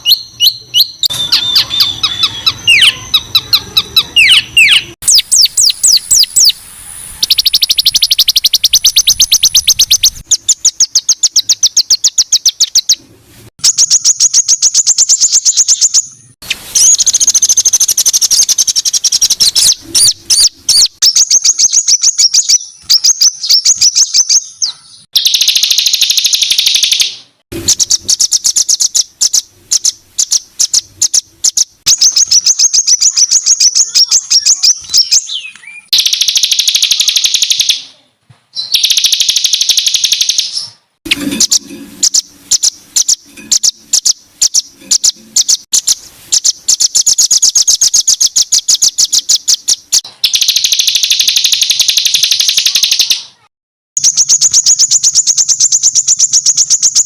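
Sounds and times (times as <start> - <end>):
songbird rapid sharp notes: 7.2 - 13.0, 25.2 - 37.9, 38.6 - 53.2.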